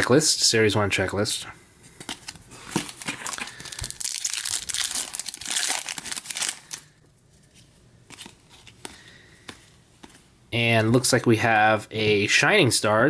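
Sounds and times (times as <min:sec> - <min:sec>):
foil wrapper crinkling and tearing: 0:02.2 - 0:07.0.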